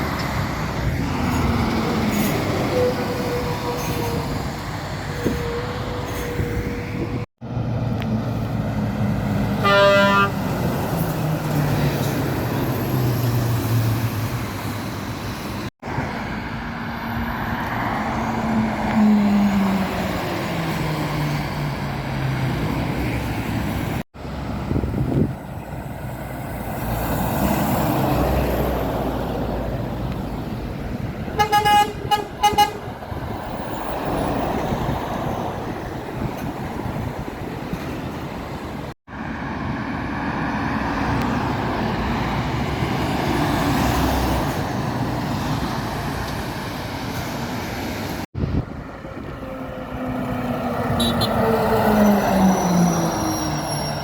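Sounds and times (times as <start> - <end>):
heavy trucks passing: 0.0 - 54.0
truck horn blasts: 9.6 - 10.4, 31.3 - 32.9, 50.9 - 51.5.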